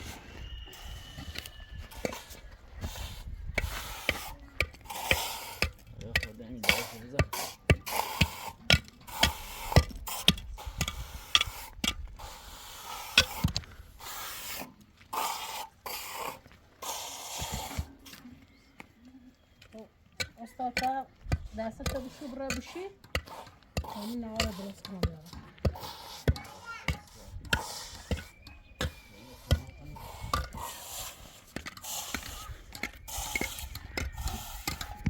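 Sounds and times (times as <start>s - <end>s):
rasping scraping on wood: 20.8s - 35.0s.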